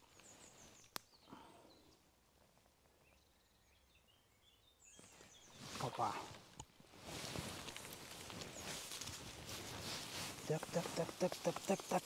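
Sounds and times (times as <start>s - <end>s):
rustle: 0.0s - 1.2s, 4.8s - 12.0s
high songbird chirps: 0.0s - 2.1s, 3.0s - 6.1s.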